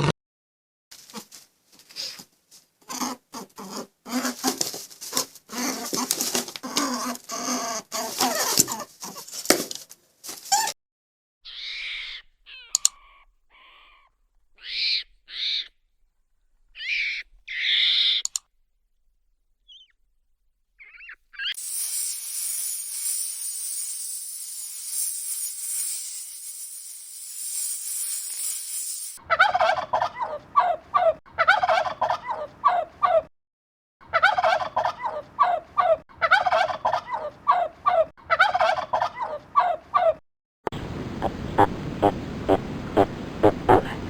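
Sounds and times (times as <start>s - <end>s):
animal calls: 11.5s - 15.8s, 16.7s - 18.4s, 41.2s - 44.0s.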